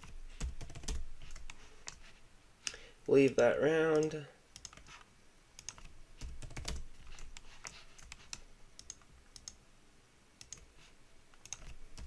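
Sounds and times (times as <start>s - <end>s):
computer keyboard typing: 0.0s - 2.1s, 3.2s - 5.0s, 5.6s - 9.6s, 10.4s - 10.7s, 11.4s - 12.0s.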